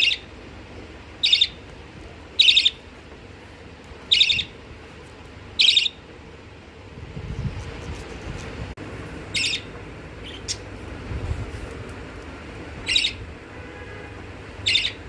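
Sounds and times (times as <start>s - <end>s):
low background hum: 0.0s - 15.0s
budgerigar high calls: 1.2s - 1.6s, 2.4s - 2.8s, 4.1s - 4.5s, 9.3s - 10.6s, 12.9s - 13.2s, 14.6s - 15.0s.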